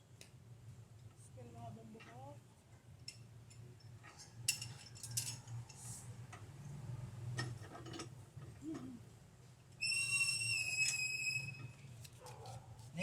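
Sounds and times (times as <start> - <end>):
light clicks and clinks: 3.0 - 6.4
high-pitched whistle: 9.8 - 11.8.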